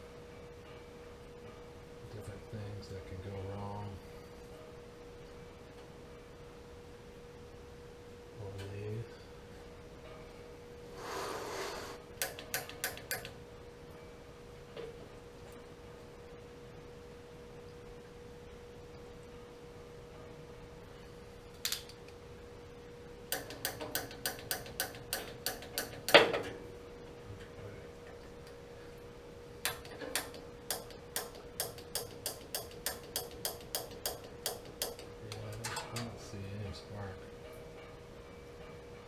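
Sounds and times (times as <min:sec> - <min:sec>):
faint steady hum: 0:00.0 - 0:39.0
spark igniter clicking rapidly: 0:12.2 - 0:13.4, 0:29.6 - 0:35.5.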